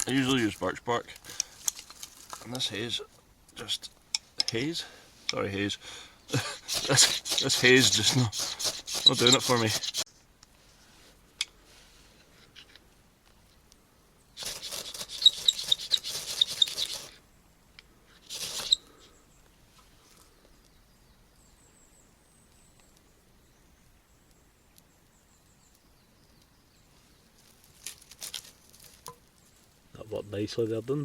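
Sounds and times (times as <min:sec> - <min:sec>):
ferro rod scraping striker: 0:06.4 - 0:10.1, 0:14.4 - 0:17.2, 0:18.2 - 0:18.8.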